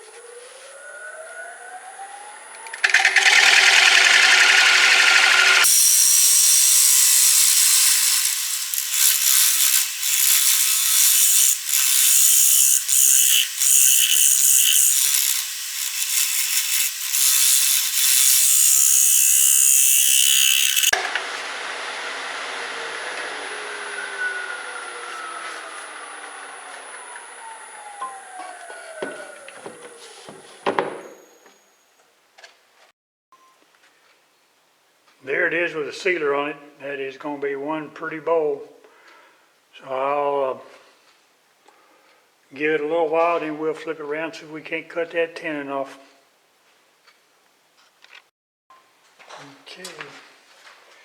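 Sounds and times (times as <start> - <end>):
lathe whine winding down: 0.0 - 30.4
pad rubbing spinning wood: 2.8 - 21.0.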